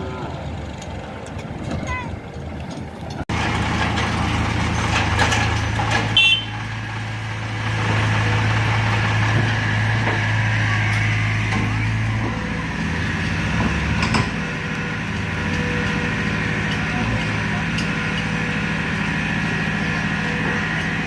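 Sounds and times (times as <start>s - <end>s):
faint voices: 0.0s - 3.2s
tractor diesel engine running: 0.0s - 21.0s.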